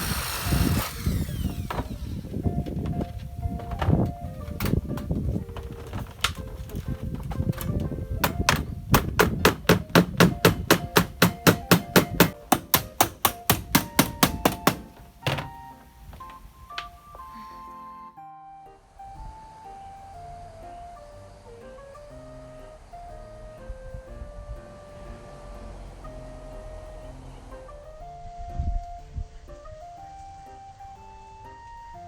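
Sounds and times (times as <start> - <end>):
background music melody: 0.0 - 32.0
rapid hammer blows: 8.2 - 15.4.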